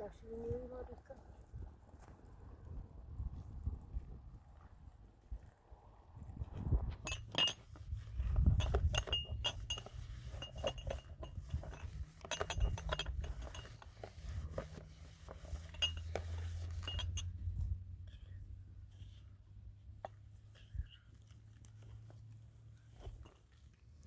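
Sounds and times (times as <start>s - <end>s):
low steady hum: 5.7s - 24.0s
light ringing clinks and taps: 7.0s - 7.8s, 8.4s - 14.6s, 15.4s - 17.4s.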